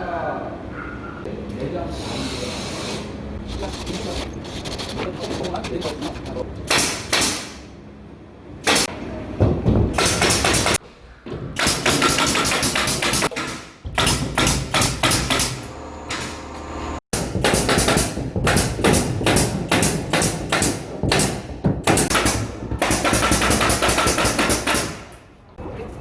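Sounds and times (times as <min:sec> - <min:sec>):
hammering knocks and clatter: 0:08.6 - 0:16.4, 0:17.2 - 0:25.3.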